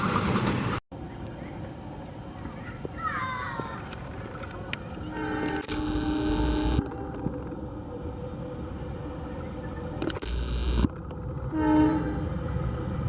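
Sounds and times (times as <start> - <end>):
train running: 4.2 - 13.0
train horn blasts: 5.1 - 7.2, 11.5 - 12.5.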